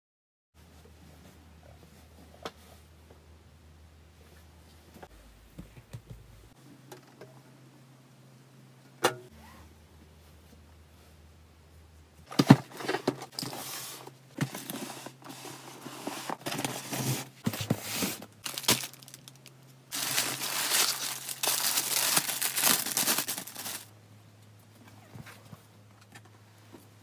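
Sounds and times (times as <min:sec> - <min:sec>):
packaging crinkling and tearing: 0:18.4 - 0:23.9.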